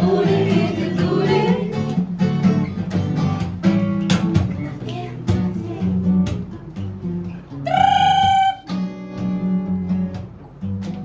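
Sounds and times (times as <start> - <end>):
acoustic guitar strumming chords: 0.0 - 11.0
high held note: 7.7 - 8.7.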